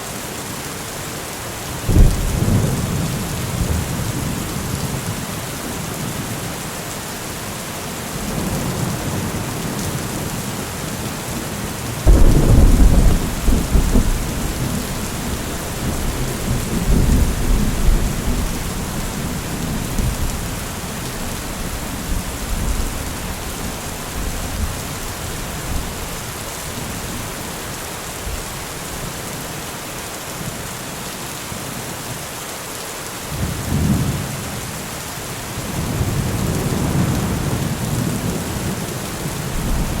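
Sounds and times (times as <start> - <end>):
heavy rain: 0.0 - 40.0
thunder rumble: 1.9 - 4.3, 12.1 - 26.1, 39.5 - 40.0.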